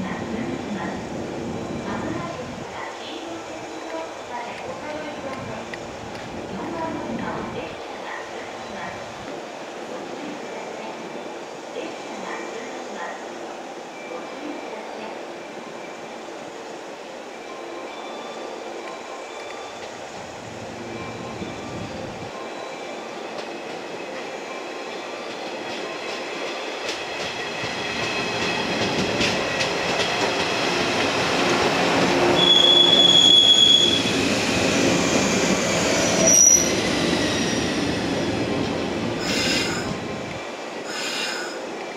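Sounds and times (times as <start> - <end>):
electric train rumble and rail clatter: 0.0 - 41.9
high wheel squeal: 32.4 - 38.0.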